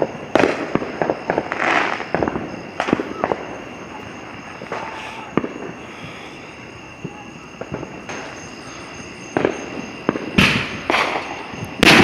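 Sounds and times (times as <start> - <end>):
loud firework bang: 0.0 - 3.5, 9.3 - 12.0
fireworks bangs and pops: 0.0 - 6.1, 7.0 - 12.0
crackle of fireworks: 0.0 - 12.0.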